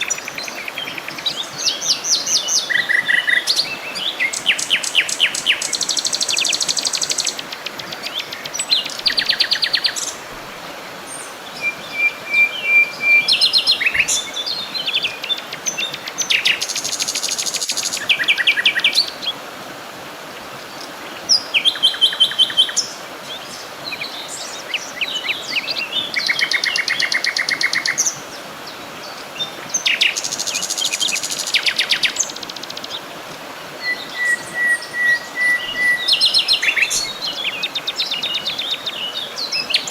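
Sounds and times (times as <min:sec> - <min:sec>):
songbirds trilling and chirping: 0:00.0 - 0:19.4, 0:20.3 - 0:39.9
faint steady hiss: 0:00.0 - 0:39.9
whistled bird notes: 0:11.6 - 0:19.0, 0:33.8 - 0:39.9.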